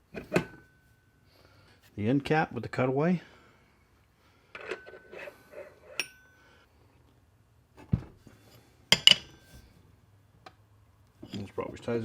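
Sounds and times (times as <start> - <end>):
metal click with short ring: 6.0 - 6.3.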